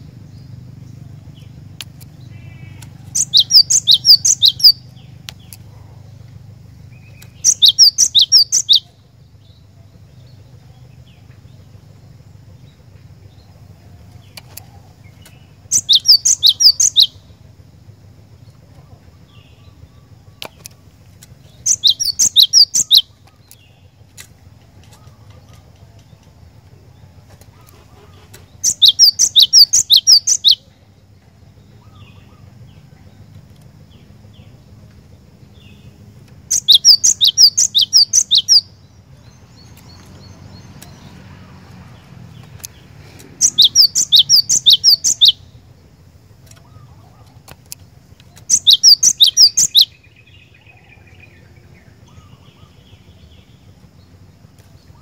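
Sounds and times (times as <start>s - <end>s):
bird singing sharp high notes: 2.5s - 4.8s, 21.6s - 23.1s, 36.5s - 38.7s, 43.4s - 45.4s, 48.4s - 50.4s.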